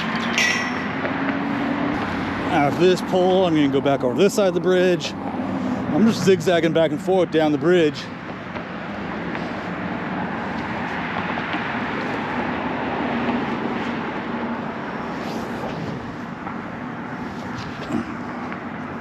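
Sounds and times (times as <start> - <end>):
passing road traffic: 0.0 - 19.0.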